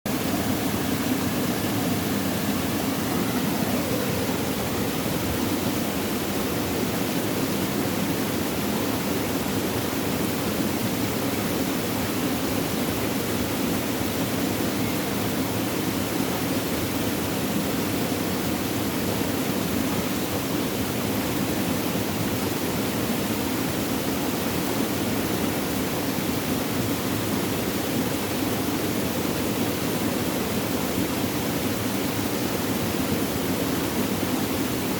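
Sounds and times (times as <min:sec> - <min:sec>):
water rushing and trickling: 0:00.1 - 0:34.9.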